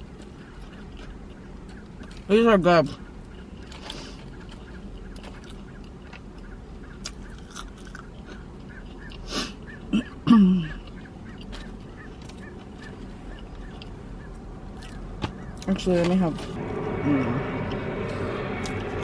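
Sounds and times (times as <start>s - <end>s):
person chewing: 0.0s - 2.3s, 3.2s - 15.6s.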